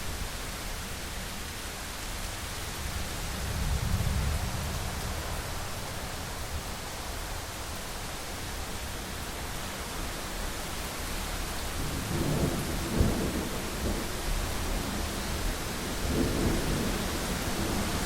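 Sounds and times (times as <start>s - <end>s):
heavy rain on window glass: 0.0s - 18.0s
rolling thunder: 3.2s - 6.4s.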